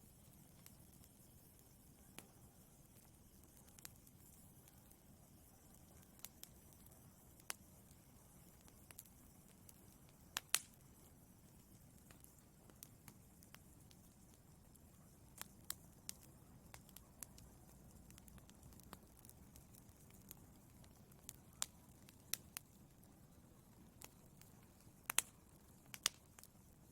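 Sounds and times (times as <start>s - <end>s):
wood fire crackling: 0.0s - 26.9s.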